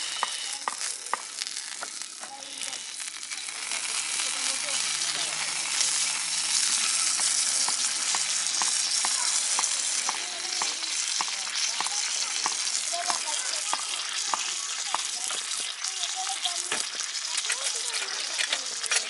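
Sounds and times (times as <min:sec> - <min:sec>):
food sizzling on griddle: 0:00.0 - 0:19.0
ticks and pops: 0:07.2 - 0:15.4.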